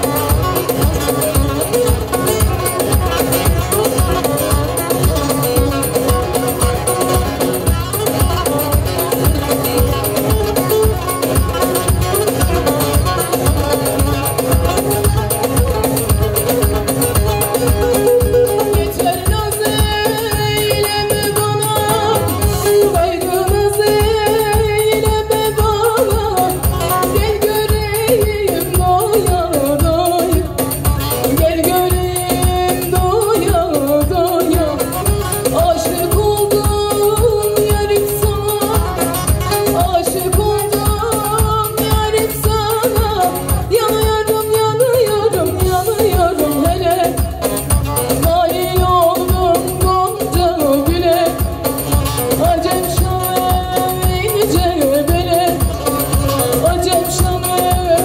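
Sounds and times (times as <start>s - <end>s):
amplified accompaniment: 0.0s - 58.0s
steady drum beat: 0.0s - 58.0s
person singing folk song: 16.8s - 58.0s.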